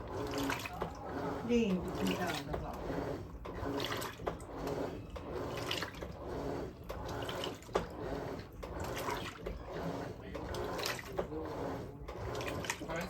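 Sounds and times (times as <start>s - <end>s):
motor hum: 0.0s - 13.0s
water swishing in washing machine: 0.0s - 13.0s.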